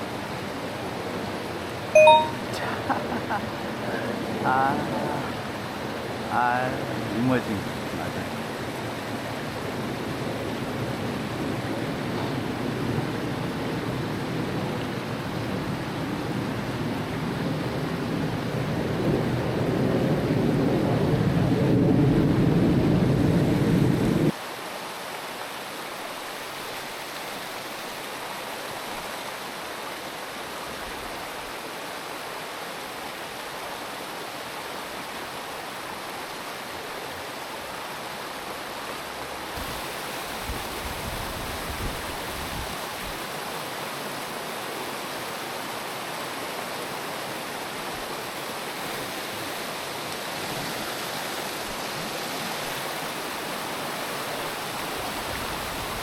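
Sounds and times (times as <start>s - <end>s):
water rushing over rocks: 0.0s - 12.1s, 24.3s - 56.0s.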